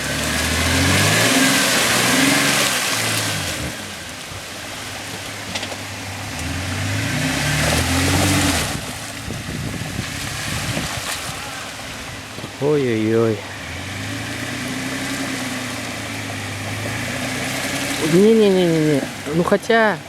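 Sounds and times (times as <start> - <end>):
suv engine revving: 0.0 - 20.0.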